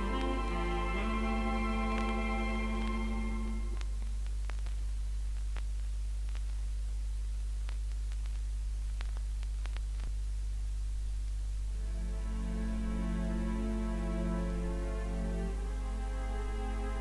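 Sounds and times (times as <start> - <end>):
low mains hum: 0.0 - 17.0
record hiss: 0.0 - 17.0
record surface clicks: 2.8 - 11.7.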